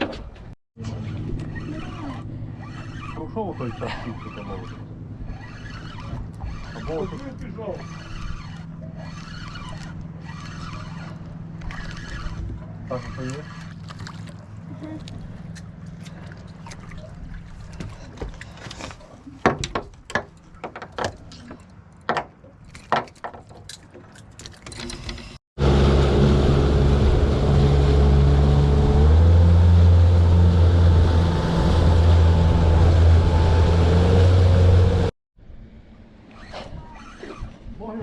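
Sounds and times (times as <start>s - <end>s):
outboard motor running: 0.8s - 19.4s, 25.6s - 35.1s.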